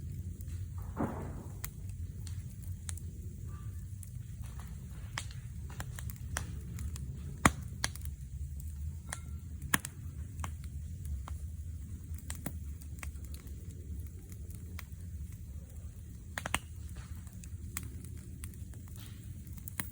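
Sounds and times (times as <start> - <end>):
wood fire crackling: 0.0 - 19.9.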